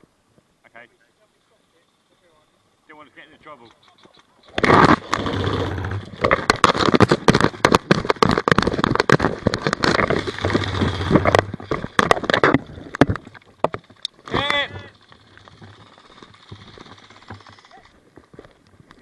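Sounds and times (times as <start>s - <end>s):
low hum: 9.8s - 17.9s.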